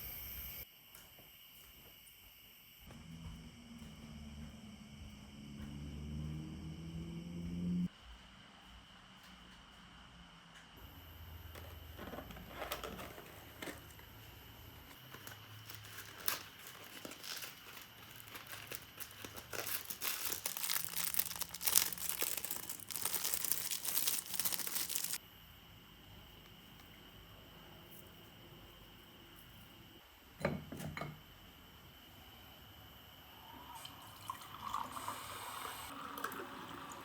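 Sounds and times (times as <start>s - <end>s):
crinkling and rustling: 11.3s - 25.2s.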